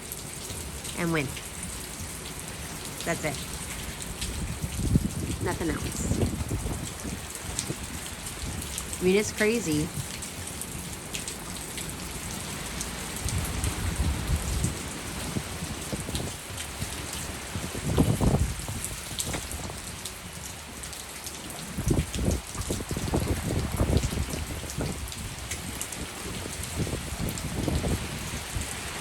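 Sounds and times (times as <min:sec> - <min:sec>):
heavy rain pouring: 0:00.0 - 0:29.0
wind gusts buffeting microphone: 0:03.6 - 0:09.0, 0:13.1 - 0:20.0, 0:21.6 - 0:29.0.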